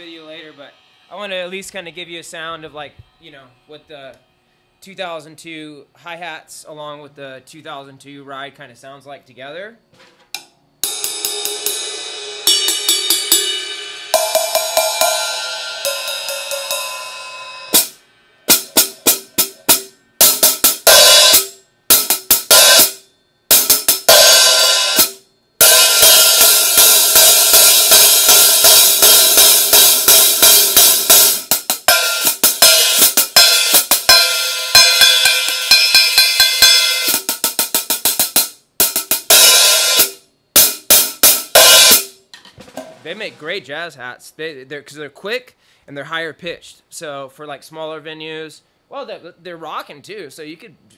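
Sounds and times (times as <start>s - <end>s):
hi-hats and ride cymbal played: 0.0s - 5.6s, 10.8s - 42.2s.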